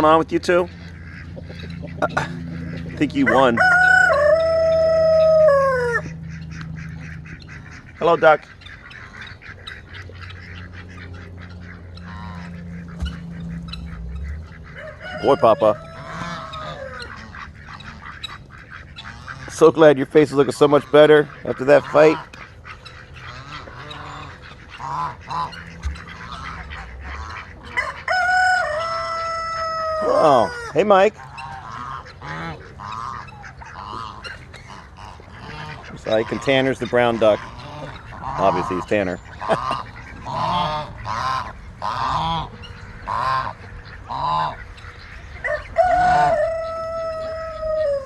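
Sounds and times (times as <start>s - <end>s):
ducks quacking: 0.0s - 48.0s
geese honking: 0.0s - 48.0s
rooster crowing: 3.2s - 6.2s, 14.7s - 17.2s, 27.7s - 30.8s, 45.4s - 48.0s.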